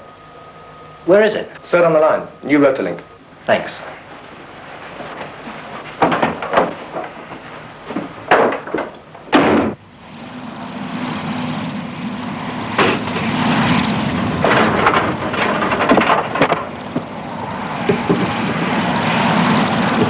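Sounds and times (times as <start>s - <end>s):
engine noise with low hum: 0.0s - 20.0s
sharp knocks: 5.1s - 9.8s, 12.8s - 13.3s, 14.4s - 17.1s.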